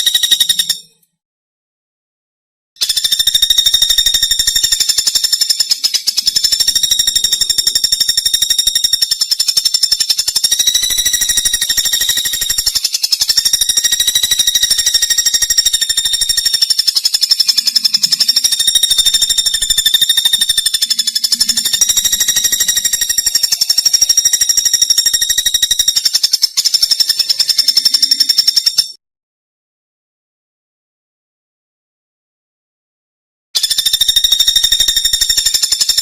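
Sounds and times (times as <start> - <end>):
high-pitched buzzing trill: 3.0 - 28.9.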